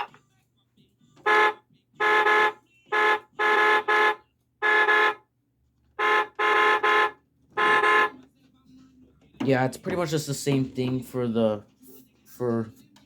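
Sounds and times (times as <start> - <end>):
toy electronic horn honks: 1.2 - 5.3, 5.9 - 8.3.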